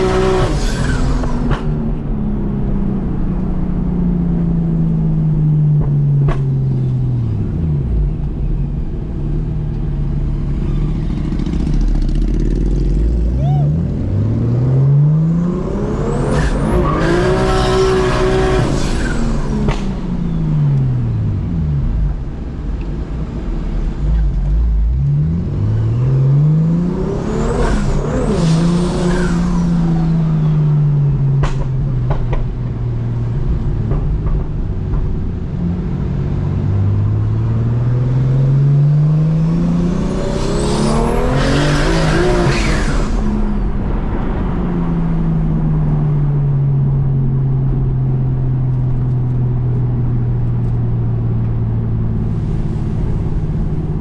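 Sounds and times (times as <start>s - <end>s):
car engine revving hard: 0.0s - 1.8s, 14.0s - 20.0s, 24.9s - 30.6s, 37.6s - 43.7s.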